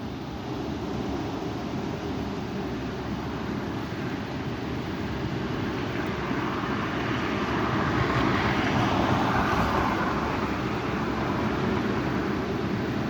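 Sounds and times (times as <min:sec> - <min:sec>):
strong wind rushing: 0:05.0 - 0:13.0.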